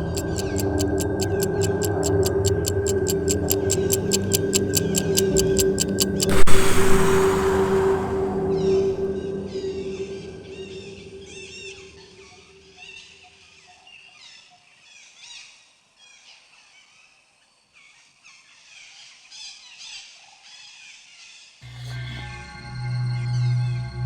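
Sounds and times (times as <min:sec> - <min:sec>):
low held tone: 0:00.0 - 0:11.7.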